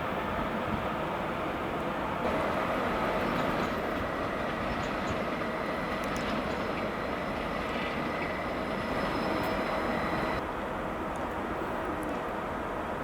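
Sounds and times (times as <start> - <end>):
train rumbling past: 0.0 - 13.0.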